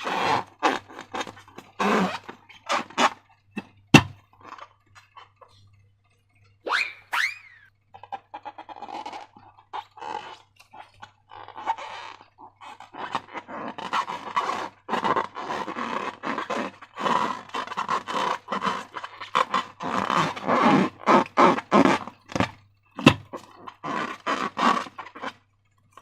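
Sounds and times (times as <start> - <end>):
slime squelching: 6.7 - 25.4.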